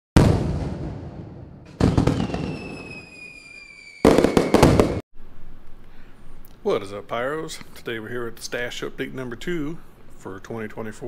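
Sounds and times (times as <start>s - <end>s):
firework bursts: 0.2s - 5.0s
falling firework whistle: 1.7s - 5.0s.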